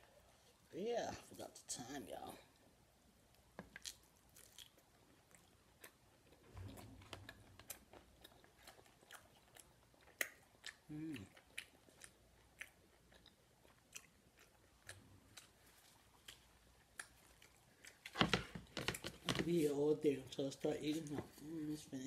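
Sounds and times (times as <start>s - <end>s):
person chewing: 3.7s - 18.2s.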